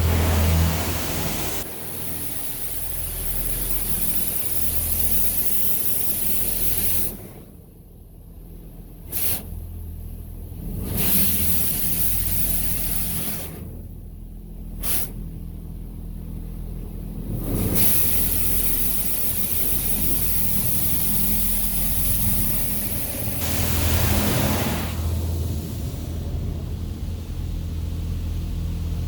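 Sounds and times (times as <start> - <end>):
water jets spraying on vehicle: 0.0 - 7.3, 10.7 - 13.8, 17.2 - 26.3
low steady hum: 18.6 - 29.0.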